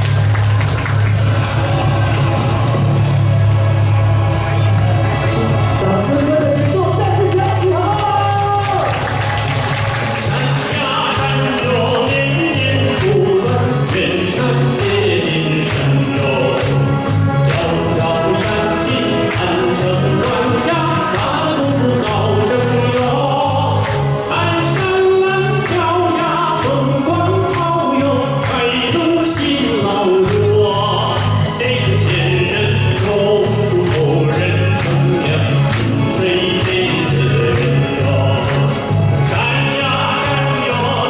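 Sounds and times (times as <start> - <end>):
backing track with bass line: 0.0 - 41.0
person singing folk song: 10.0 - 41.0.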